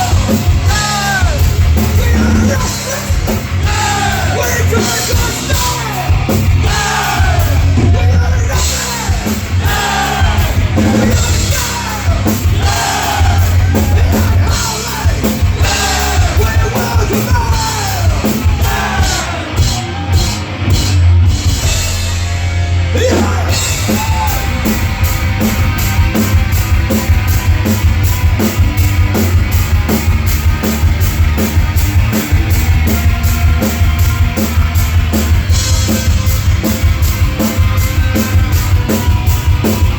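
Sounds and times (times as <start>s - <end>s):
fast drum beat: 0.0s - 39.9s
rock band playing: 0.0s - 39.9s
person shouting vocals: 22.9s - 24.6s.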